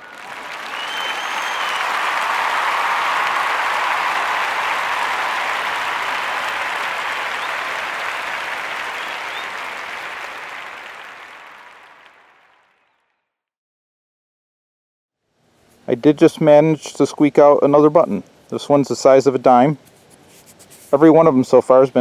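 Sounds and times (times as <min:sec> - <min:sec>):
crowd applause: 0:00.0 - 0:13.0.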